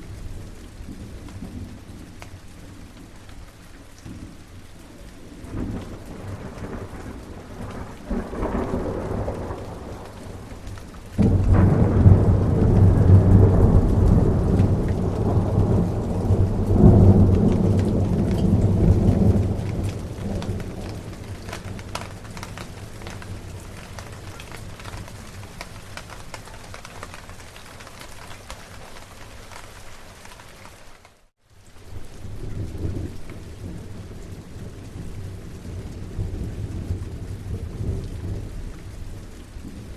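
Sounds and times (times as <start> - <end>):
steady rain: 0.0 - 39.9
thunder rumbling: 4.1 - 29.6.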